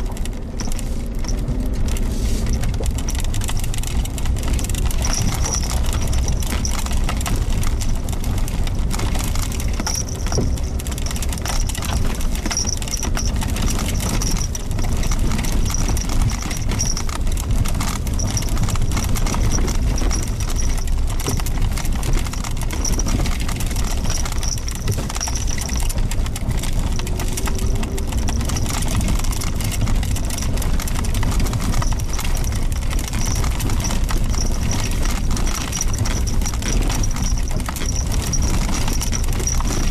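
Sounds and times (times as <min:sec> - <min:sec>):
engine and road rumble: 0:00.0 - 0:39.9.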